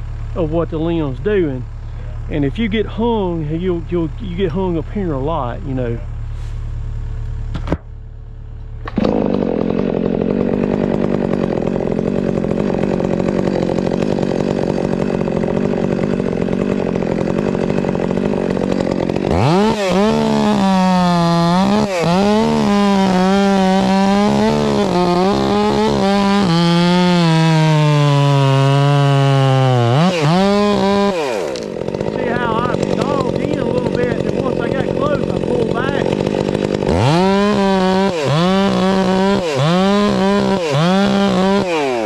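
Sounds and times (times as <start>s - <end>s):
chainsaw cutting through wood: 0.0s - 42.0s.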